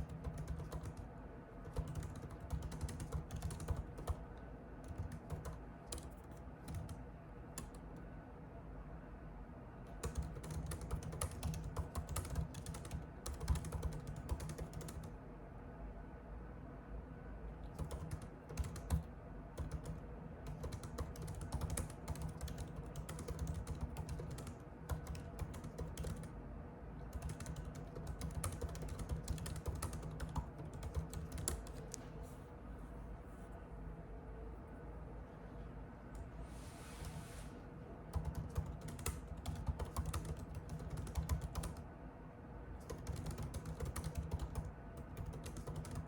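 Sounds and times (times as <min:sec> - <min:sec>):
typing on a keyboard: 0:00.0 - 0:08.0, 0:09.9 - 0:15.2, 0:17.6 - 0:26.3, 0:27.1 - 0:32.0, 0:38.1 - 0:41.8, 0:42.8 - 0:46.0.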